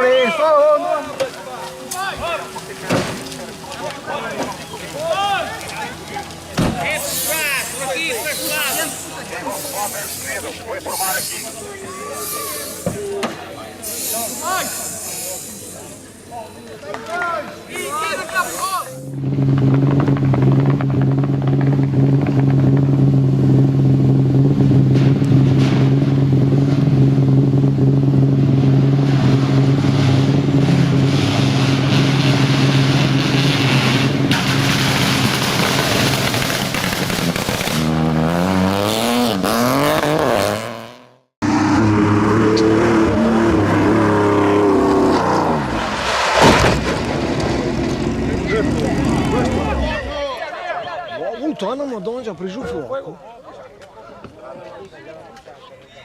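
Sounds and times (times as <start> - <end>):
rally car engine revving: 19.1 - 50.2.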